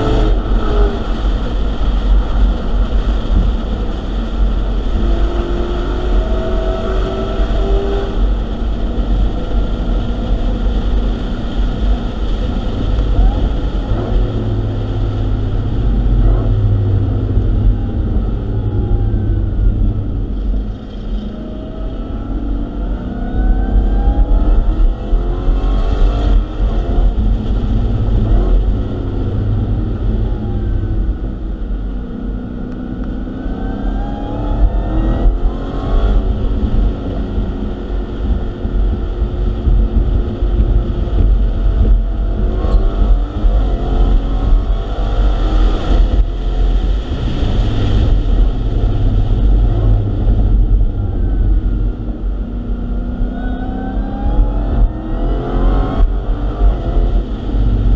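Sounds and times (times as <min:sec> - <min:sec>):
car engine accelerating: 0:00.0 - 0:57.9
wind and road noise: 0:00.0 - 0:57.9.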